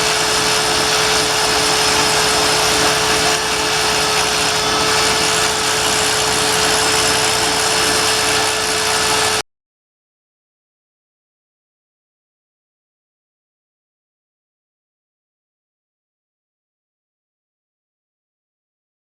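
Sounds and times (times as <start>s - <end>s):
die grinder grinding metal: 0.0s - 9.4s.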